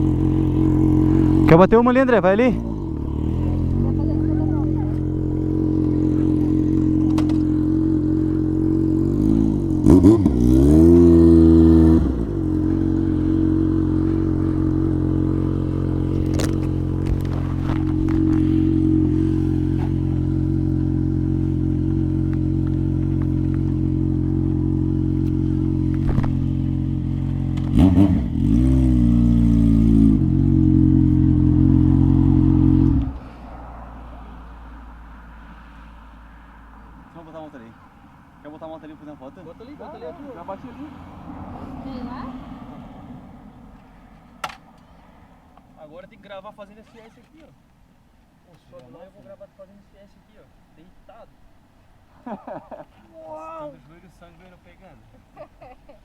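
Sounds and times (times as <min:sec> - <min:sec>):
motorcycle engine idling and revving: 0:00.0 - 0:44.8.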